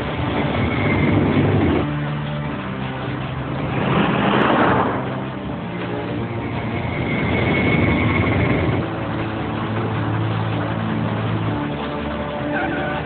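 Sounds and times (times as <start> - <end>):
thin high whine: 0.0 - 1.9, 2.6 - 9.0
engines running: 0.0 - 13.0.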